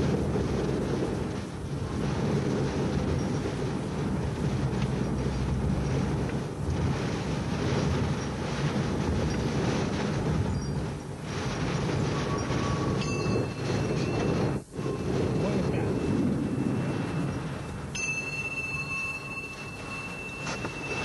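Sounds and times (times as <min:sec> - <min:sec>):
wind noise: 0:00.0 - 0:21.0.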